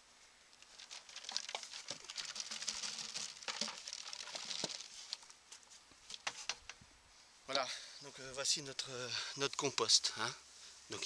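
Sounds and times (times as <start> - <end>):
compost pieces pattering into bucket: 0.6 - 5.3.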